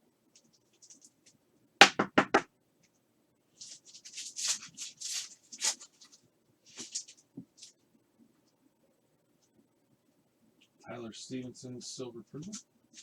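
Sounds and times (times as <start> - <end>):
trading cards rustling: 3.6 - 7.8.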